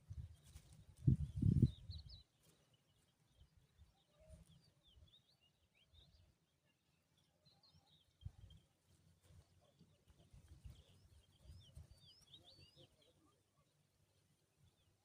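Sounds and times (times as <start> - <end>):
bird chirps and twitters: 9.3 - 13.4.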